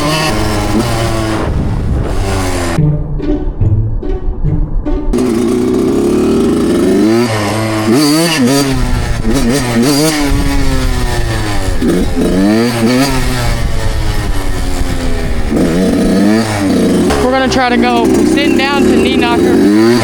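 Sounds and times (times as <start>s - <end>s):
dirt bike engine revving: 0.0s - 2.8s, 5.1s - 20.0s.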